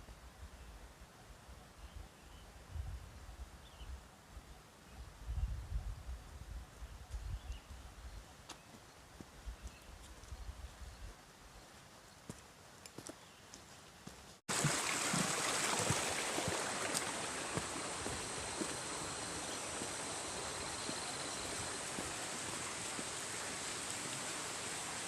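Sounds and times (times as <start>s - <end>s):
heavy rain falling: 14.5s - 25.0s.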